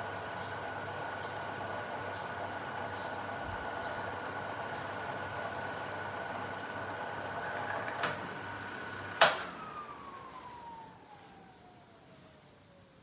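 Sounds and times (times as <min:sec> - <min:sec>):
fan motor whine and air: 0:00.0 - 0:13.0
loud switch click: 0:09.2 - 0:09.6
small click: 0:09.2 - 0:09.6.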